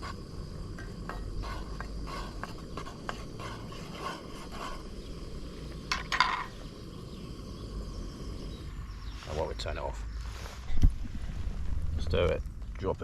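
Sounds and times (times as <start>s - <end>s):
utensil stirring boiling water: 0.0s - 6.5s.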